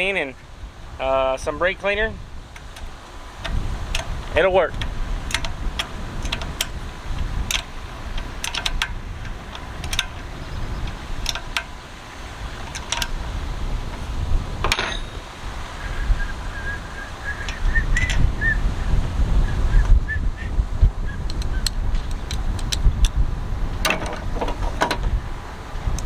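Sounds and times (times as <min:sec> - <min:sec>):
metal parts clicking and clinking: 0:04.8 - 0:06.8, 0:07.4 - 0:11.8, 0:12.6 - 0:13.2, 0:13.9 - 0:15.3, 0:23.8 - 0:25.1.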